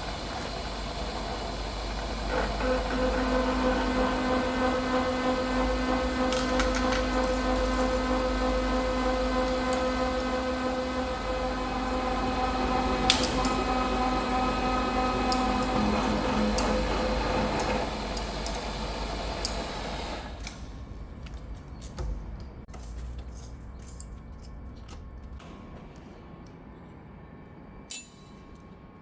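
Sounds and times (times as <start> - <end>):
milling machine hum with whine: 0.0 - 20.5.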